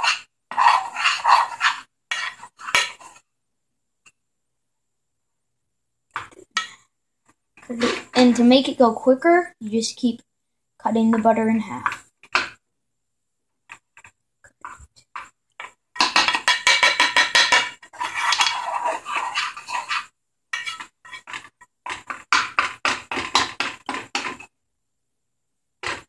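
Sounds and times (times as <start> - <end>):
metal utensil scraping a pan: 0.0 - 3.2, 16.0 - 24.5.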